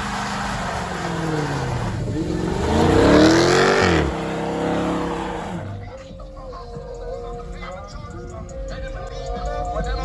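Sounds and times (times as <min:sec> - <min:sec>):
car engine revving: 0:00.0 - 0:06.1.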